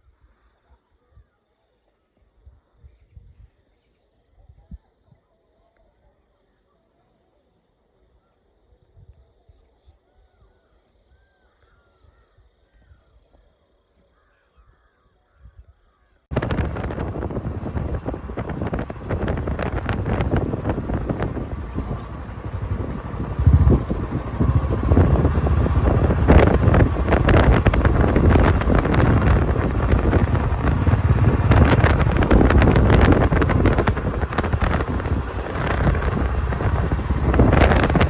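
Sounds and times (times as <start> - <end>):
wind buffeting microphone: 16.3 - 38.0.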